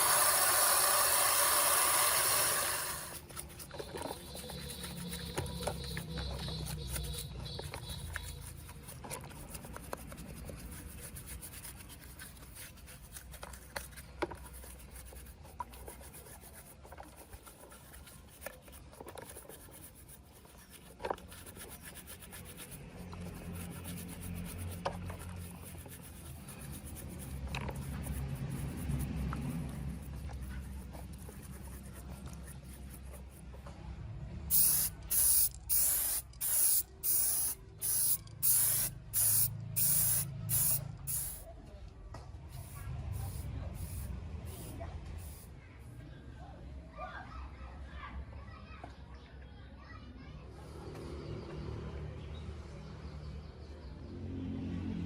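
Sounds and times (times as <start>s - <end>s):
rubbing and scraping: 0.0s - 33.8s.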